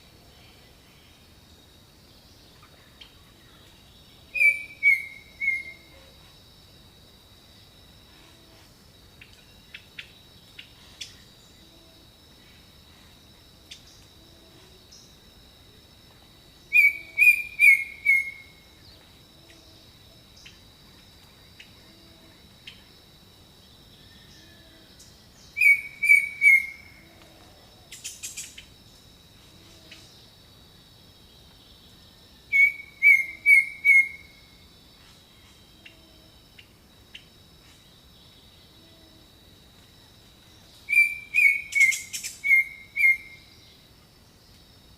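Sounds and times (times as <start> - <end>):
high insect drone: 0.0 - 44.9
bird chirps: 4.3 - 6.0, 16.7 - 18.5, 25.4 - 26.8, 32.5 - 34.3, 40.9 - 43.4.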